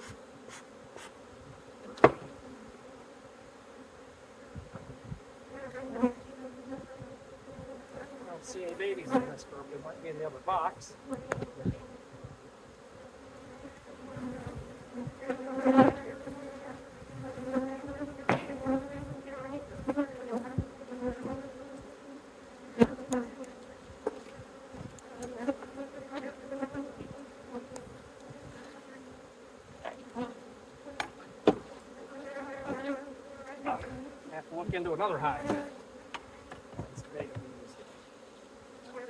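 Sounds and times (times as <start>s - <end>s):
honeybees buzzing: 0.0s - 39.0s
sharp knocks: 2.0s - 2.3s.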